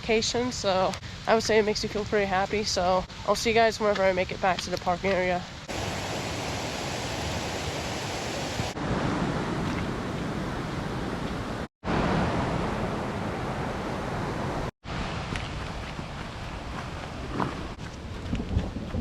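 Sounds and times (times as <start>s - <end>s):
steady rushing noise: 5.6s - 9.6s.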